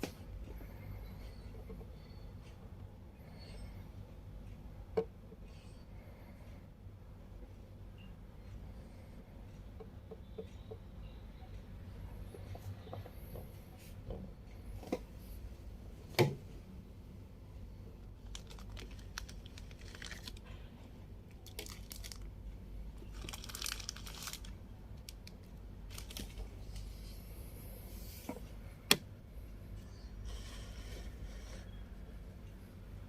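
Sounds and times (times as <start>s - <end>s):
faint rustling and crinkling: 18.0s - 20.8s, 21.4s - 22.3s, 23.0s - 28.5s.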